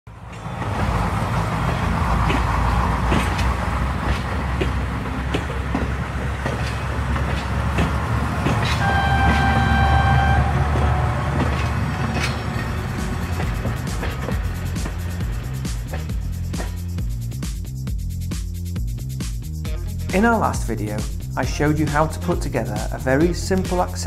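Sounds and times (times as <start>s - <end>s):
regular train clicks: 0.1s - 18.6s
train rumbling: 0.1s - 24.0s
train whistle: 8.4s - 12.6s.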